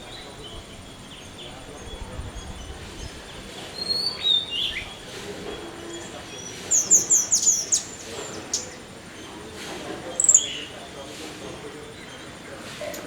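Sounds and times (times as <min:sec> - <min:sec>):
small bird chirping: 0:00.0 - 0:09.3, 0:10.0 - 0:10.9.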